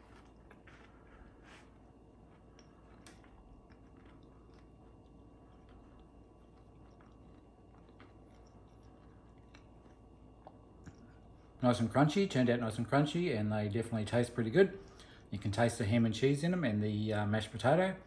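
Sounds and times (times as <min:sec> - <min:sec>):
person chewing crunchy food: 0:00.0 - 0:11.7.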